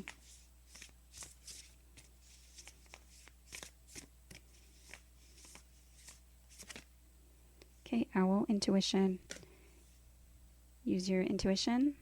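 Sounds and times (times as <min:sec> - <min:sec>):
cards being shuffled: 0:00.0 - 0:06.9.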